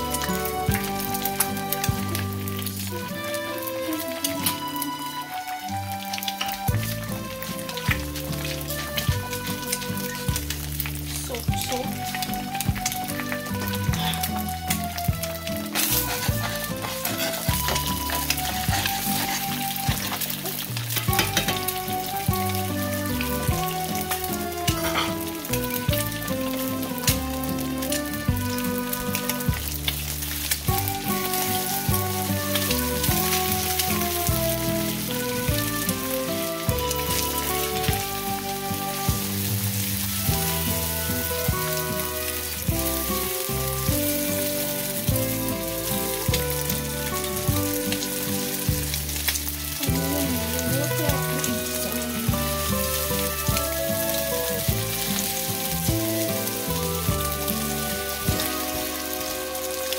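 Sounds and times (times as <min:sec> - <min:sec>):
background music: 0:00.0 - 0:59.9
eggs sizzling in a frying pan: 0:00.0 - 0:59.9
spatula scraping pan: 0:15.7 - 0:21.8, 0:24.6 - 0:25.6.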